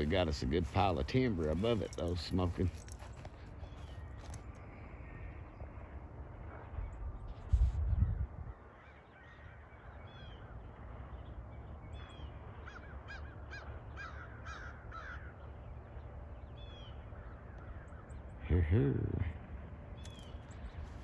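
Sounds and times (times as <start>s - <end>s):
bird calling: 8.5s - 21.0s.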